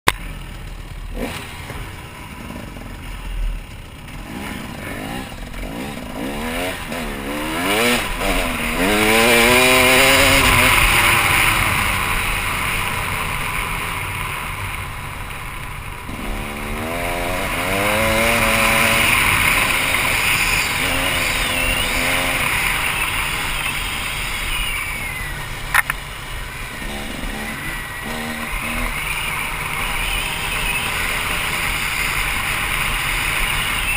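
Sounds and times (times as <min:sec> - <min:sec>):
dirt bike engine revving: 0:00.1 - 0:33.9
sharp click: 0:25.7 - 0:26.0.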